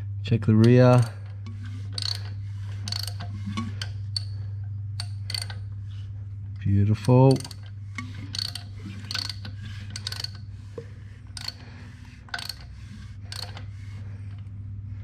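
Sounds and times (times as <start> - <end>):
socket ratchet clicking: 0.6 - 1.2, 2.0 - 4.4, 5.0 - 5.6, 7.0 - 10.5, 11.3 - 11.6, 12.3 - 12.7, 13.3 - 13.7.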